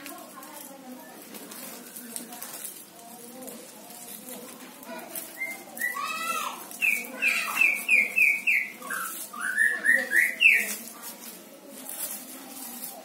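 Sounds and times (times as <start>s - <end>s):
songbird whistled notes: 6.8s - 10.8s.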